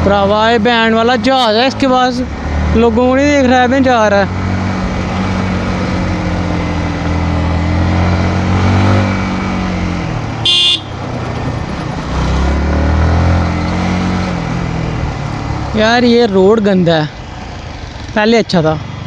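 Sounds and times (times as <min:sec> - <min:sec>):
motorcycle engine at low speed: 0:00.0 - 0:19.0
short high horn toot: 0:10.4 - 0:11.0.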